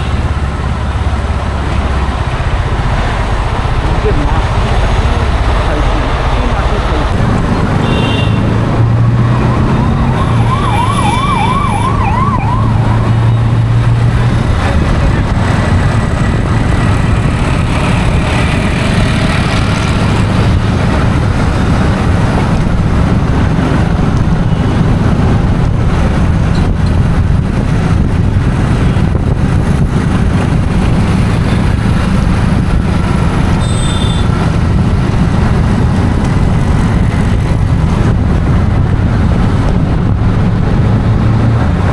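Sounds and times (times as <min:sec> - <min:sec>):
road traffic noise: 0:00.0 - 0:41.9
warbling siren: 0:09.0 - 0:13.9.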